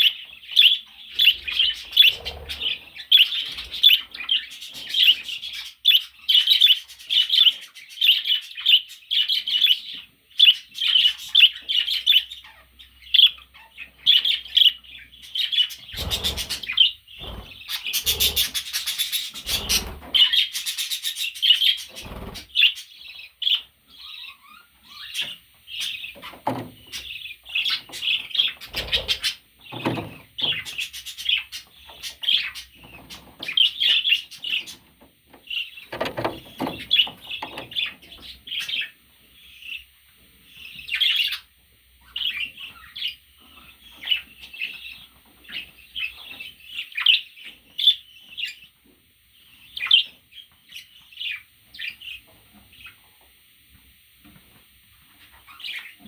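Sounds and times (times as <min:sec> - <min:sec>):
budgerigar chirping: 0:00.0 - 0:34.8
knocks and rustles: 0:26.2 - 0:27.1, 0:35.0 - 0:37.9.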